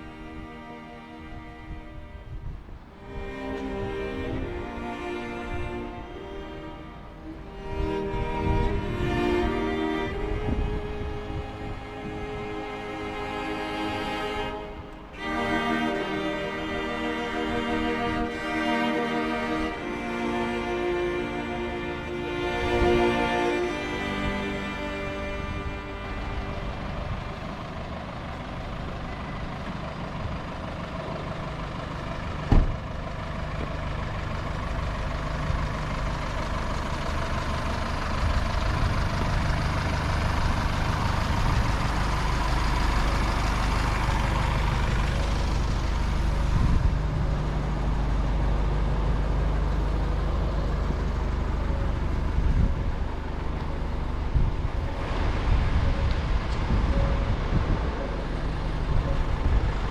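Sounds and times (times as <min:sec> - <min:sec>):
motor traffic passing: 0:00.0 - 0:59.9
wind rumbling on microphone: 0:01.4 - 0:04.8, 0:07.6 - 0:12.6, 0:25.4 - 0:27.6, 0:40.4 - 0:47.6, 0:52.2 - 0:58.0, 0:58.8 - 0:59.9.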